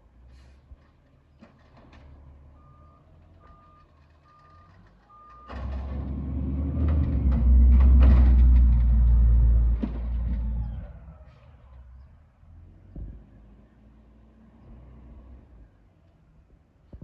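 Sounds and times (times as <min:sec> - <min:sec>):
truck engine idling and revving: 0:00.0 - 0:17.0
truck backup alarm beeping: 0:02.6 - 0:05.6.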